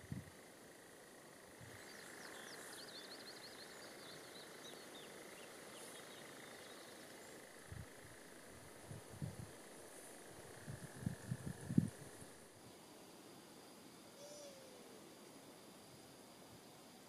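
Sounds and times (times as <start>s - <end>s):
faint bird chirps and twitters: 1.5s - 8.2s, 14.2s - 15.0s.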